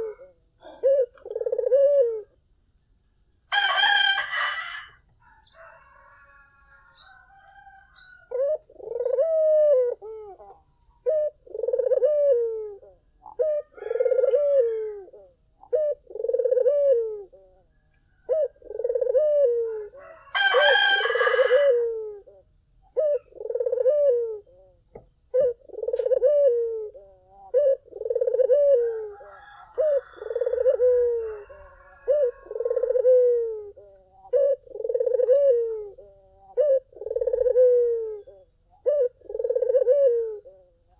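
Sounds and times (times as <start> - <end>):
dove cooing: 0.0 - 2.4, 3.5 - 40.9
rooster crowing: 3.5 - 8.6, 13.6 - 15.2, 19.4 - 22.0, 28.6 - 33.8.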